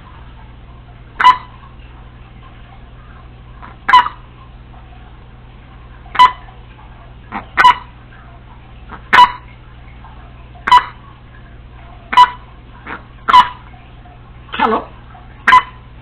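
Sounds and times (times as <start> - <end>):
parrot sharp calls: 1.2 - 1.6, 3.6 - 4.2, 6.1 - 6.5, 7.3 - 7.9, 8.9 - 9.5, 10.6 - 11.0, 12.1 - 13.7, 15.4 - 15.8.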